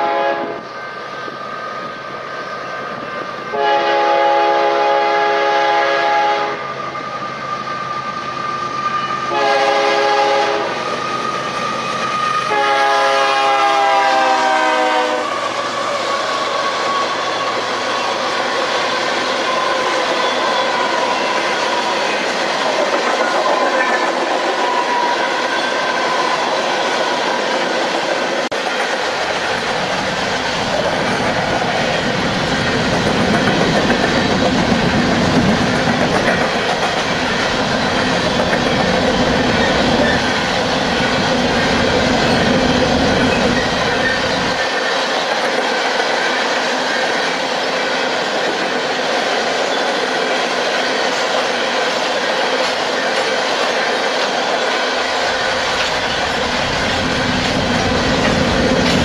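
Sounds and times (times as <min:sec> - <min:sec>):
freight train rumble: 0:00.0 - 0:59.0
steel wheels clicking over rail joints: 0:27.9 - 0:47.4, 0:48.2 - 0:59.0.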